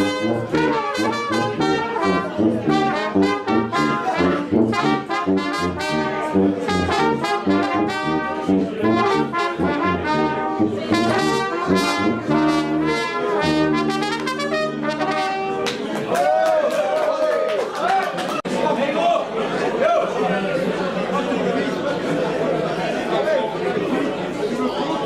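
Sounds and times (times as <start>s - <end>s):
brass band playing: 0.0s - 15.8s.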